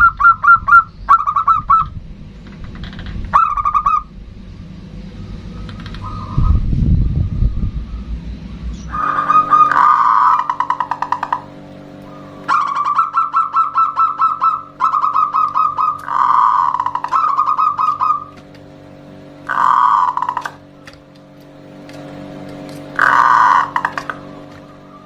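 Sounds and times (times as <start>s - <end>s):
steady low hum: 0.0s - 25.0s
dove cooing: 8.9s - 18.5s, 19.4s - 20.8s, 22.9s - 25.0s.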